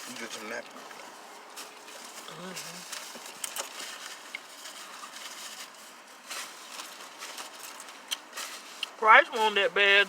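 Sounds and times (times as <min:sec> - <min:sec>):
food packaging rustling: 0:00.0 - 0:09.6.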